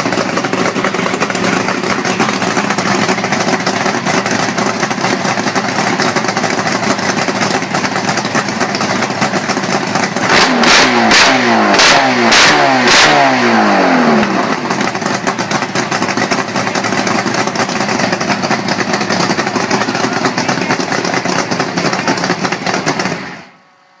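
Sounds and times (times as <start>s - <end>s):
engine revving from idle: 8.6s - 23.4s.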